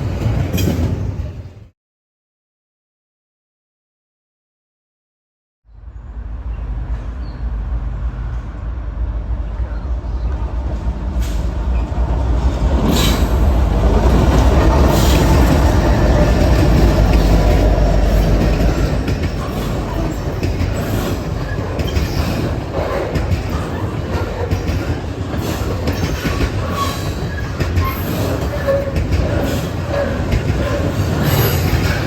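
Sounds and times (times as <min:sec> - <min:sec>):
freight train rumbling past: 0:00.0 - 0:01.7, 0:05.7 - 0:32.0
steel wheels clicking on rails: 0:12.6 - 0:32.0.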